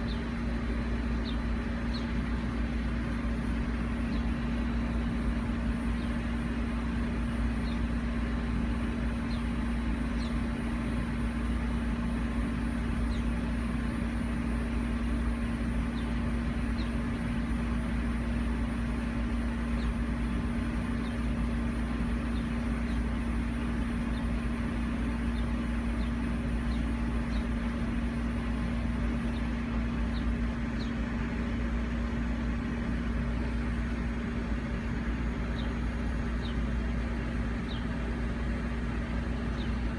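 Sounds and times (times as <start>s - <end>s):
faint bird chirps: 0.0s - 0.4s, 29.3s - 31.0s
steady mechanical hum: 0.0s - 39.9s.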